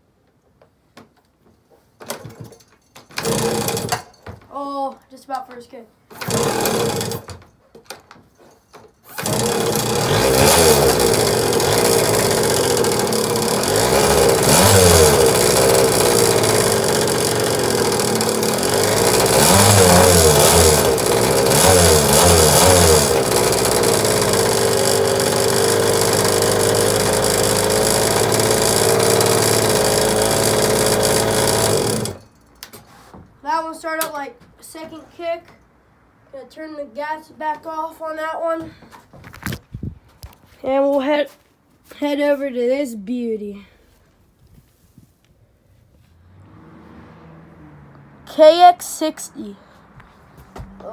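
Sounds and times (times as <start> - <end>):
two-stroke engine starting and running: 3.1 - 4.1, 6.1 - 7.4, 9.0 - 32.3.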